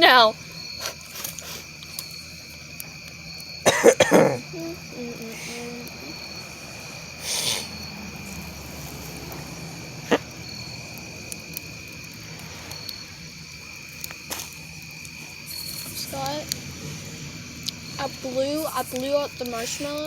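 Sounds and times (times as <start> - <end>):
campfire wood popping: 0.0 - 20.0
crickets chirping: 0.0 - 20.0
short hissing burst: 6.5 - 9.1, 12.2 - 13.4.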